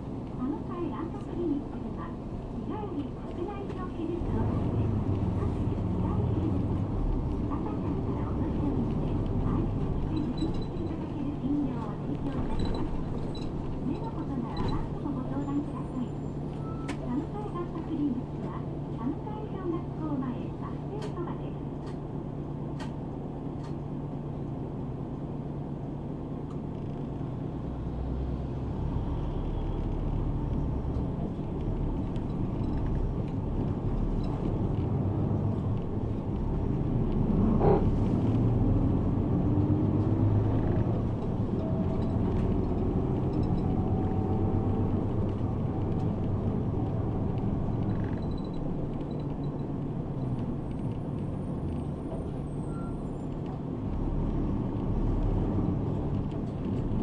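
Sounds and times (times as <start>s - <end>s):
bus engine and road noise: 0.0s - 57.0s.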